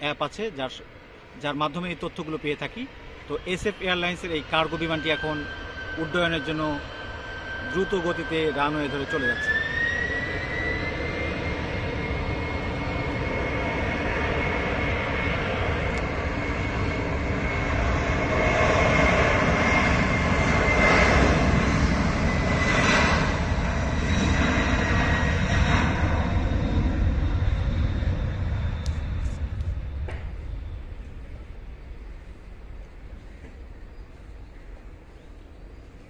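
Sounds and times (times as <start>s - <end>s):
jet engines at takeoff thrust: 0.0s - 36.0s.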